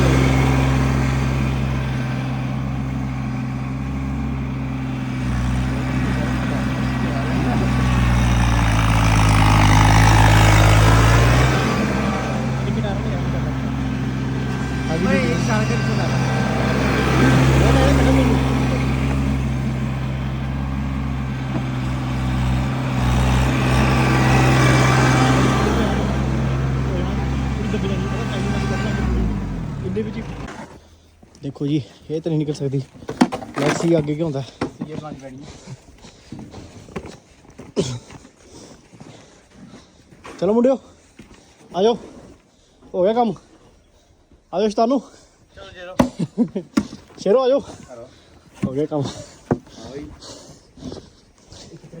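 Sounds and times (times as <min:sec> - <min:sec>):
vehicle engine running: 0:00.0 - 0:31.4.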